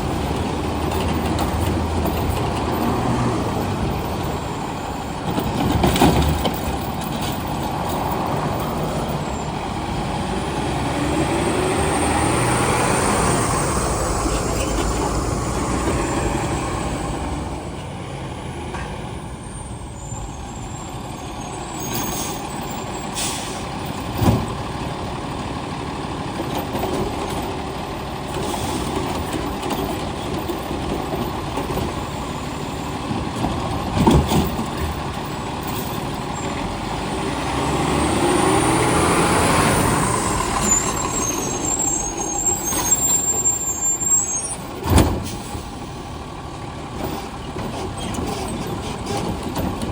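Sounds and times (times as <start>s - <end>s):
garbage truck engine running: 0.0s - 49.9s
air brake hisses: 21.8s - 23.7s.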